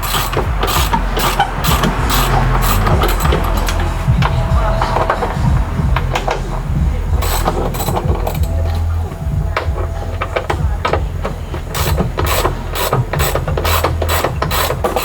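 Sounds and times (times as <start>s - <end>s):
ratchet wrench clicking: 0.0s - 4.0s, 7.2s - 8.9s, 11.6s - 15.0s
low steady hum: 0.0s - 15.0s.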